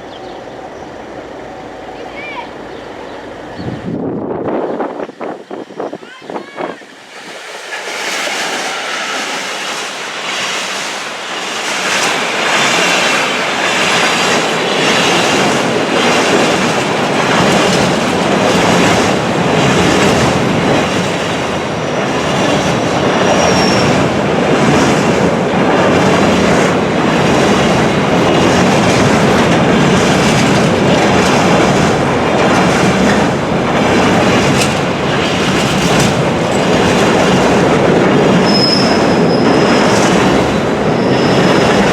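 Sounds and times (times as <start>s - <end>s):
train wheels clattering: 7.2s - 41.9s
high wheel squeal: 22.8s - 24.1s, 38.4s - 40.1s, 40.9s - 41.9s.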